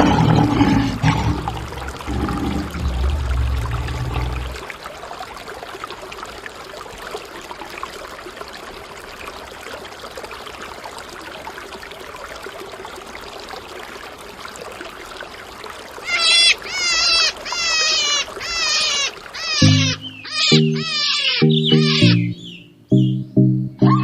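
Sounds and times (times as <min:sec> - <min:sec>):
water trickling and splashing: 0:00.0 - 0:21.6
high-pitched wavering sounds: 0:19.6 - 0:22.4.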